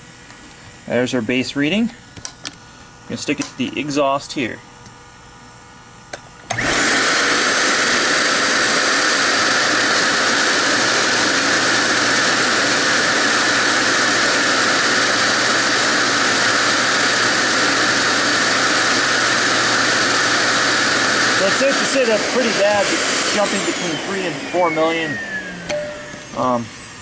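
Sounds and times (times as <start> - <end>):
vacuum cleaner running: 6.4 - 27.0.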